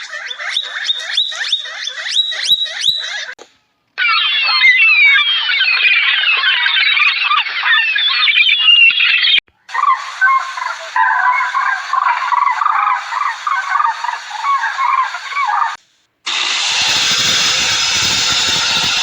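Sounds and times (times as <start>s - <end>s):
flock of birds calling: 0.0s - 3.4s, 4.0s - 19.0s
steady rushing noise: 16.3s - 19.0s.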